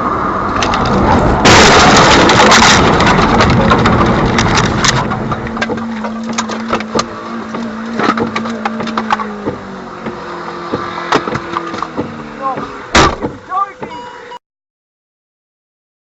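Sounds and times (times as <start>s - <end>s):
vehicle collision crash: 0.5s - 7.0s, 12.9s - 13.4s
clicks and clatter: 0.5s - 9.6s.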